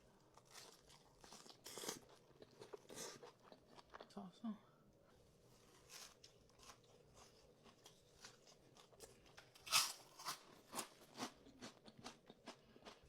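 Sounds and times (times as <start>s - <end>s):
crunchy chewing: 0.2s - 4.1s, 5.8s - 13.0s.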